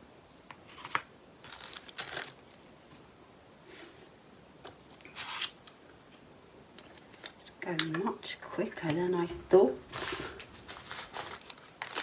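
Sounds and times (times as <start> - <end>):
plastic bags crinkling: 1.5 - 2.5, 9.3 - 12.0.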